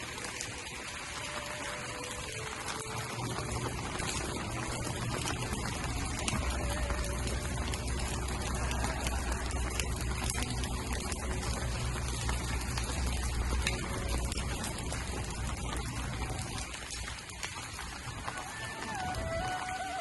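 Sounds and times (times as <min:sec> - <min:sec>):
rain falling: 0:00.0 - 0:20.0
low rumble: 0:03.0 - 0:18.4.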